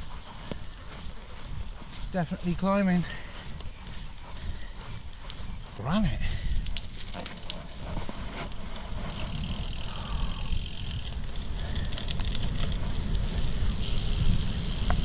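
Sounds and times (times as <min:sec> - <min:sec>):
wind rumble on microphone: 0:00.0 - 0:15.0
bike clicks and knocks: 0:06.6 - 0:15.0.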